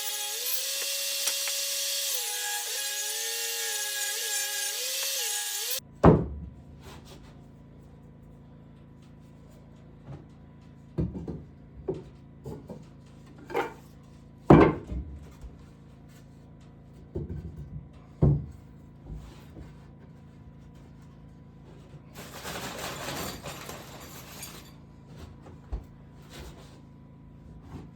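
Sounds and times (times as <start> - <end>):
wooden knocks and thuds: 6.0 - 6.5, 11.0 - 12.8, 14.5 - 15.3, 17.1 - 18.6.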